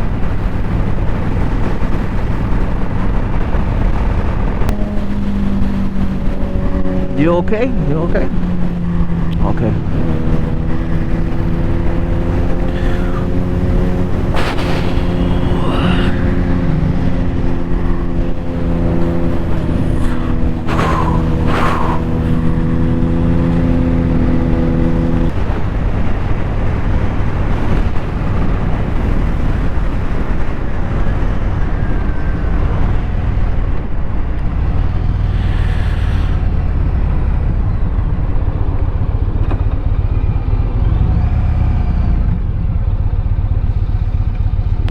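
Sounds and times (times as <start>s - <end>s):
motorcycle engine cruising: 0.0s - 44.9s
road rush: 0.0s - 44.9s
wind noise: 0.0s - 44.9s.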